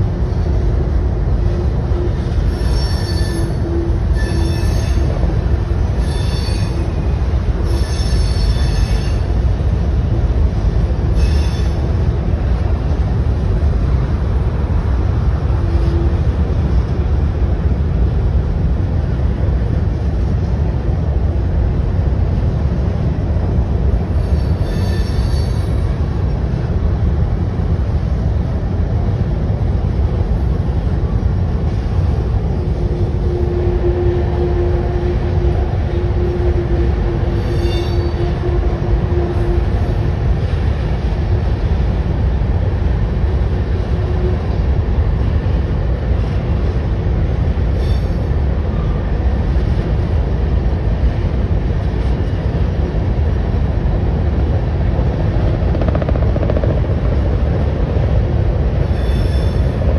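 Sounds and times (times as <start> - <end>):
train rumbling over steel bridge: 0.0 - 59.9
high-pitched wheel squeals: 2.3 - 5.3, 5.9 - 7.0, 7.6 - 9.4, 11.1 - 11.9, 24.2 - 25.9, 33.2 - 39.8, 47.8 - 48.3, 58.8 - 59.9.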